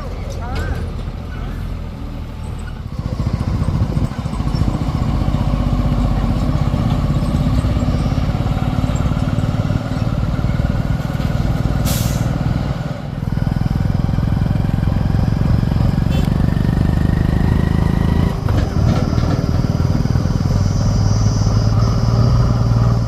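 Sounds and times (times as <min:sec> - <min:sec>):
heavy diesel engine running: 0:00.0 - 0:23.0
short hiss: 0:11.8 - 0:12.3.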